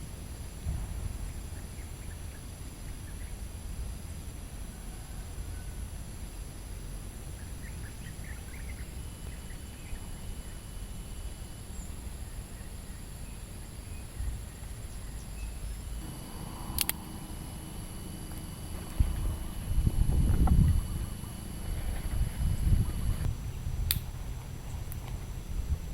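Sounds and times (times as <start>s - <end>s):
faint high steady tone: 0.0s - 23.8s
steady low rumble: 0.0s - 25.9s
faint chirps: 0.2s - 23.7s
sharp click: 16.6s - 17.2s.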